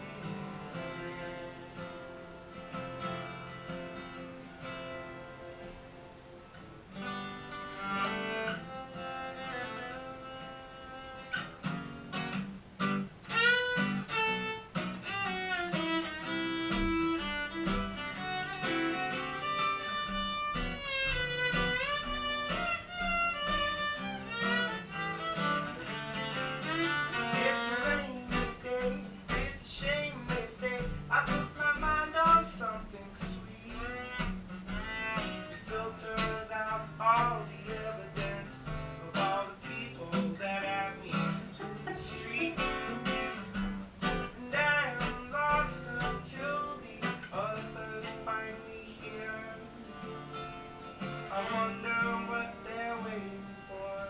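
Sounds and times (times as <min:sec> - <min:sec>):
acoustic guitar strummed and picked: 0:00.0 - 0:54.0
bowed string melody: 0:07.6 - 0:11.6, 0:13.3 - 0:29.1.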